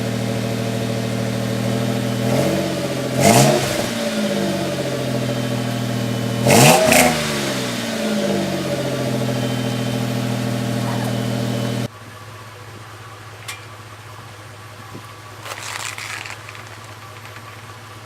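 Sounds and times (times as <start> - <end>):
engine throttle blip: 0.0 - 13.8
car engine idling: 0.0 - 18.0.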